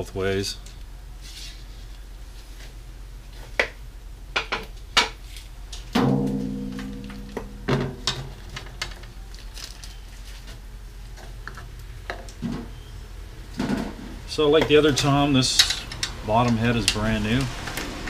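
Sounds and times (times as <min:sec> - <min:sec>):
tom drum struck ringing: 0:06.0 - 0:08.3
drum being handled knocks: 0:06.0 - 0:08.4.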